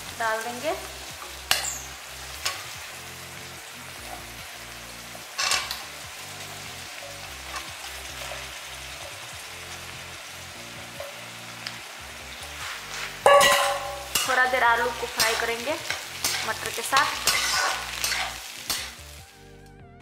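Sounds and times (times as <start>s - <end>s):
vegetables sizzling in oil: 0.0s - 19.5s
spatula stirring: 15.2s - 19.0s.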